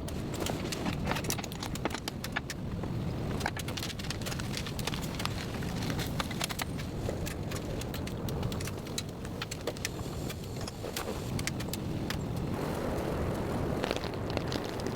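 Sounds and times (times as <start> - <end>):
raindrops ticking on surface: 0.0 - 14.9
heavy rain: 12.4 - 14.9.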